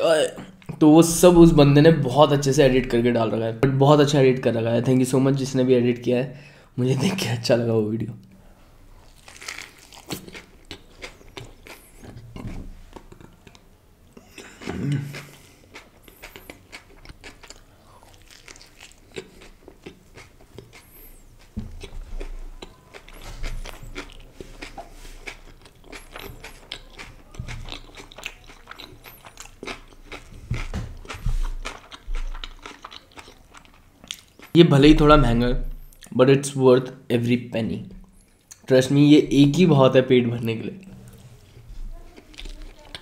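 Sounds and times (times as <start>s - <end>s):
man chewing wrap: 8.8s - 34.6s, 40.8s - 43.0s.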